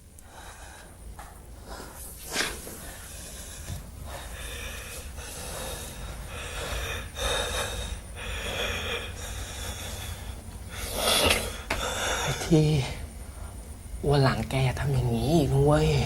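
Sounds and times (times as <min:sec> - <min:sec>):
person gasping breaths: 0:02.8 - 0:12.5.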